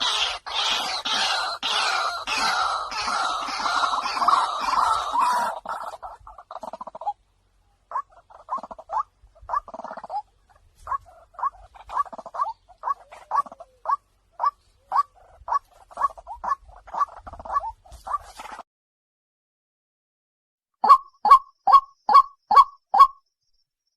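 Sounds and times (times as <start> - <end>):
waterhen calling: 0.0 - 18.6.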